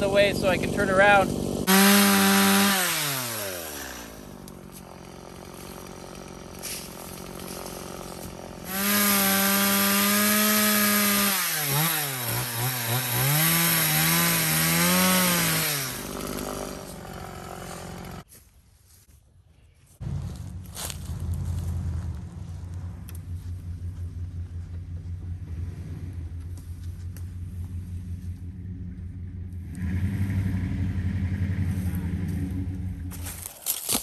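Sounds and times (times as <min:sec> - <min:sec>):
chainsaw running: 0:00.0 - 0:18.3, 0:29.1 - 0:34.0.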